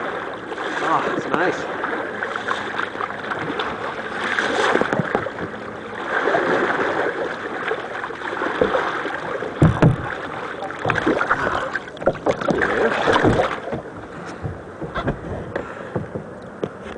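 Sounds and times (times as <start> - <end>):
water sloshing and splashing: 0.0 - 16.9
low thumps: 9.6 - 16.8.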